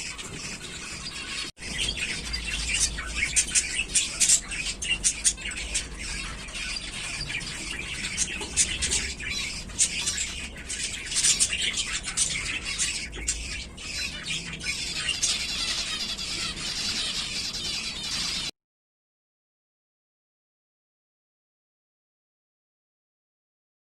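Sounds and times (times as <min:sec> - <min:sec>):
finches chattering: 0:00.0 - 0:18.5.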